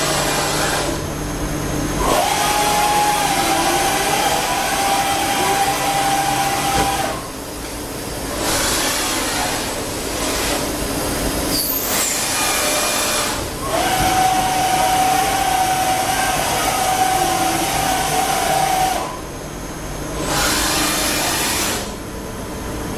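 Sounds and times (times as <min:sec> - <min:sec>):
lathe running: 0:00.0 - 0:01.2, 0:01.9 - 0:11.3, 0:11.9 - 0:19.2
high mechanical whine: 0:00.0 - 0:22.9.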